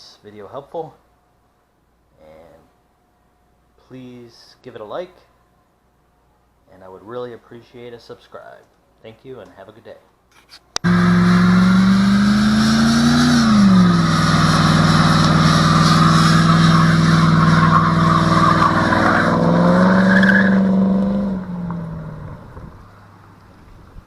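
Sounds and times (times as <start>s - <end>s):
car engine revving: 10.8s - 23.2s.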